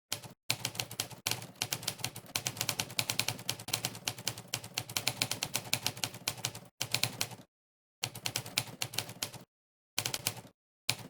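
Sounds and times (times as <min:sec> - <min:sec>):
typewriter keystroke clacks: 0:10.0 - 0:11.0.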